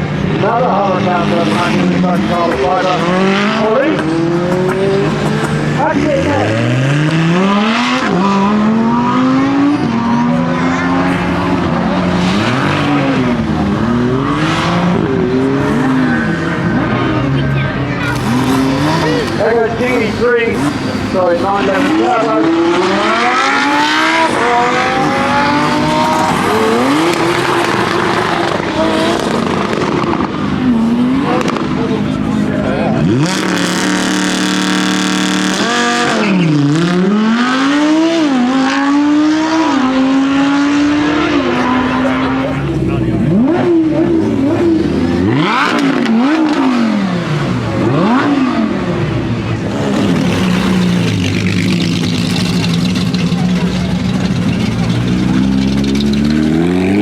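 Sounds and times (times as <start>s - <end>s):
car engine accelerating hard: 0.0s - 57.0s.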